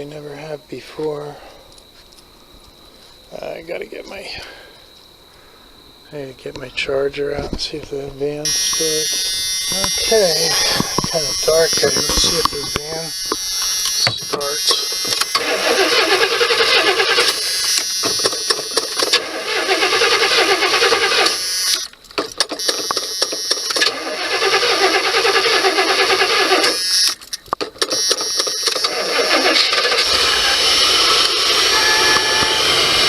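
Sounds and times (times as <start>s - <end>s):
starter cranking engine: 8.5s - 21.8s, 22.5s - 27.2s, 27.8s - 33.0s
engine running: 28.9s - 33.0s.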